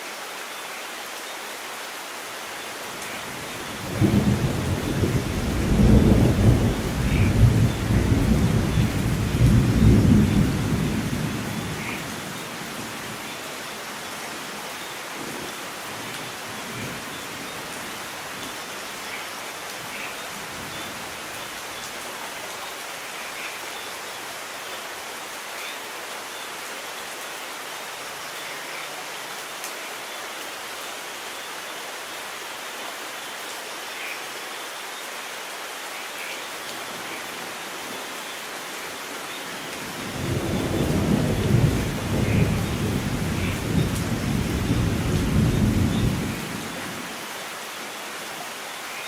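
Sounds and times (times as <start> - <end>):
heavy rain: 0.0 - 49.0
thunder rumbling: 3.8 - 11.9, 40.0 - 46.8.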